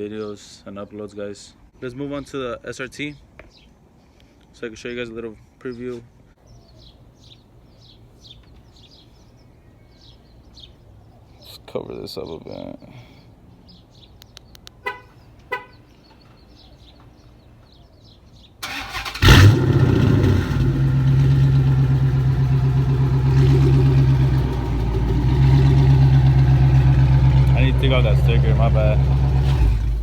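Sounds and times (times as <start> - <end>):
car horn chirps: 14.8 - 15.8
car engine starting and idling: 18.6 - 30.0.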